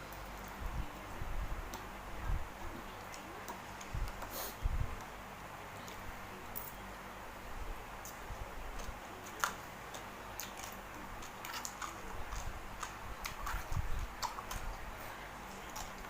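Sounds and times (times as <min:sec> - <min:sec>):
chewing clicks and smacks: 0:08.0 - 0:14.8, 0:15.4 - 0:16.0.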